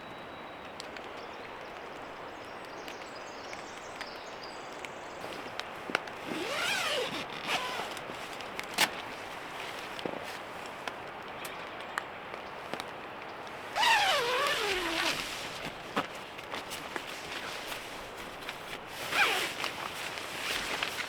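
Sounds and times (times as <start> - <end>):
steady rain hiss: 0.8 - 21.0
zipper being pulled: 6.2 - 9.0, 13.7 - 16.0, 18.9 - 21.0.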